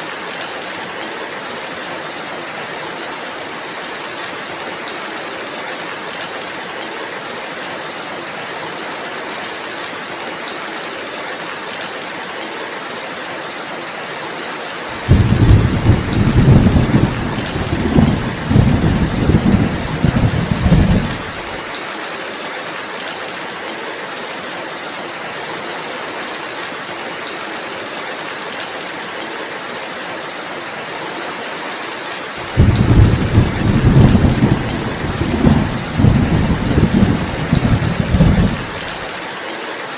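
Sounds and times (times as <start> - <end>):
steady rainfall: 0.0 - 39.9
thunder rumbling: 15.0 - 21.6, 32.4 - 39.1.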